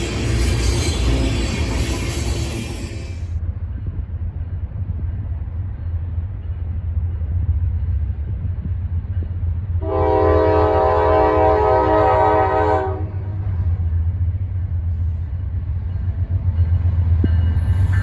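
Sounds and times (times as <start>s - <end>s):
train rumbling: 0.0s - 18.0s
locomotive air horn chord: 9.8s - 13.3s.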